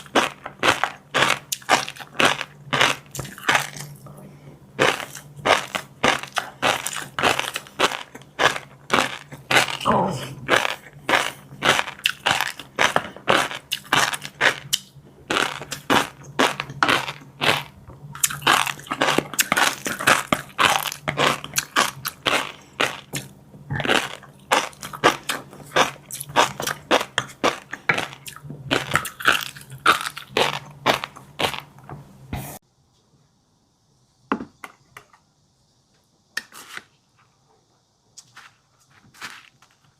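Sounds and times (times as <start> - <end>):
crunchy chewing: 0.0 - 4.2, 4.8 - 31.8.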